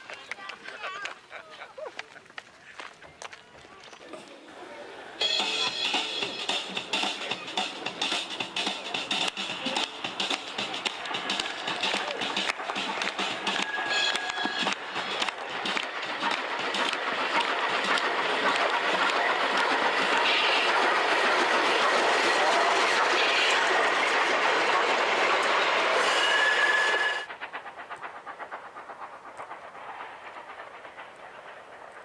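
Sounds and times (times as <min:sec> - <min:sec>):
train rushing on rails: 0:00.0 - 0:32.0
wheels clicking over rail joints: 0:05.2 - 0:26.0.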